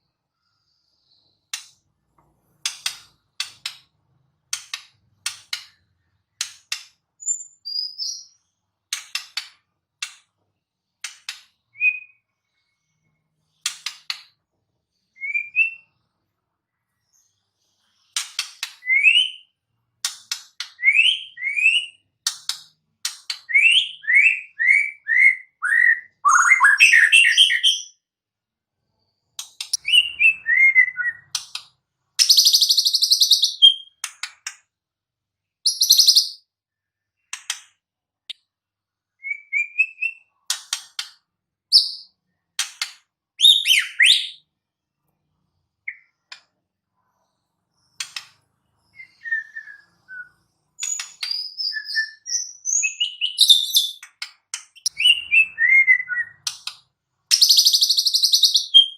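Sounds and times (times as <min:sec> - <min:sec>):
bird singing varied song: 0:04.5 - 0:09.4, 0:10.7 - 0:19.6, 0:20.6 - 0:28.2, 0:28.8 - 0:34.5, 0:35.4 - 0:37.4, 0:38.3 - 0:40.6, 0:43.3 - 0:44.6, 0:45.4 - 0:46.5, 0:47.3 - 0:58.9.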